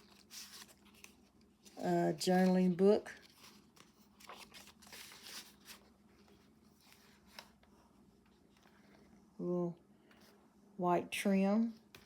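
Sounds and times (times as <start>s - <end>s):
paper pages rustling: 0.0s - 9.2s.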